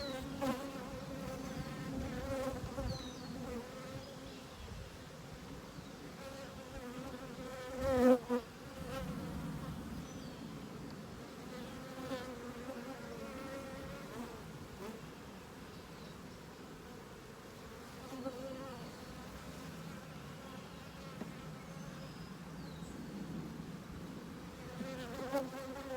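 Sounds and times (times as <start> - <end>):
honeybees buzzing: 0.0 - 4.4.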